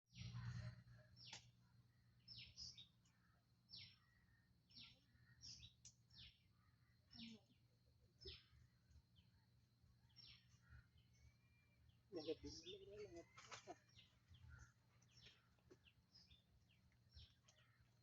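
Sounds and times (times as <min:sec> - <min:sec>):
bird calling: 0:00.1 - 0:01.5, 0:10.2 - 0:18.0.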